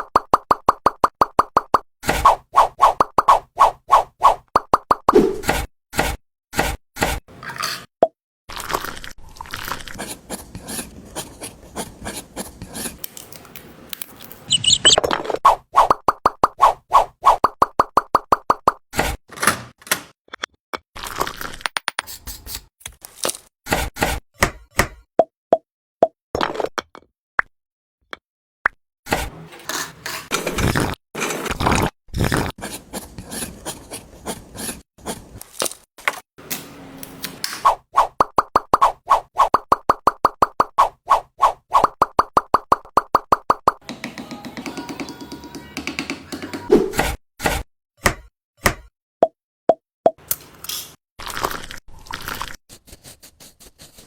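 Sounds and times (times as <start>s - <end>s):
small tools scraping and rubbing: 9.6s - 13.1s, 29.2s - 35.9s
brief high chirping: 14.5s - 15.0s.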